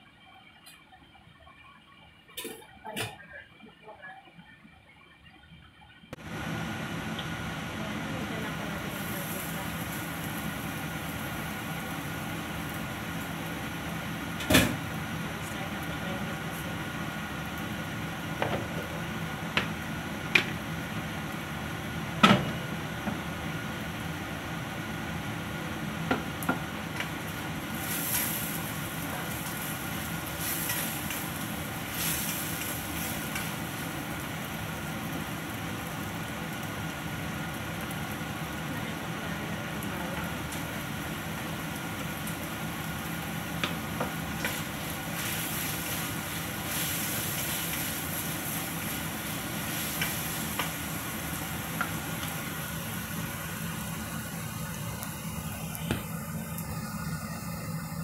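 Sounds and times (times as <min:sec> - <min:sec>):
steady background hum: 0:00.0 - 0:58.0
food sizzling in oil: 0:06.4 - 0:57.6.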